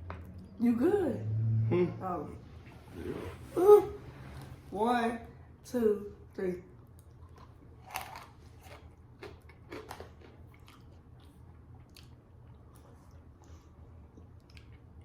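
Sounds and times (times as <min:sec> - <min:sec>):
ice cream crunching when chewed: 0:06.8 - 0:15.0.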